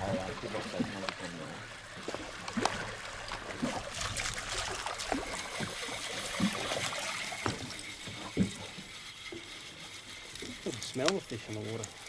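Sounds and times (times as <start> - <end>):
soft water slaps: 0.0 - 8.8
water lapping against a boat hull: 0.0 - 12.0.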